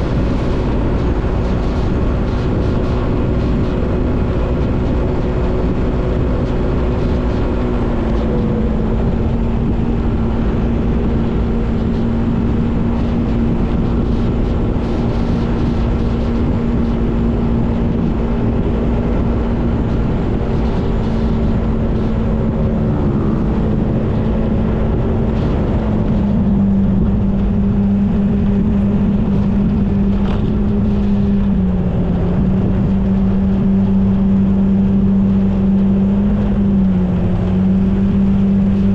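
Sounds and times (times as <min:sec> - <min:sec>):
continuous rushing noise: 0:00.0 - 0:38.9
motorbike engine running: 0:00.0 - 0:38.9.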